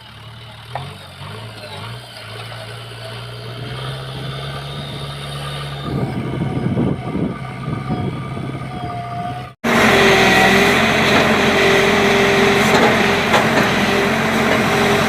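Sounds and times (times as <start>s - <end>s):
diesel engine of earth-moving machine: 0.0s - 15.0s
crackling over engine: 9.6s - 15.0s.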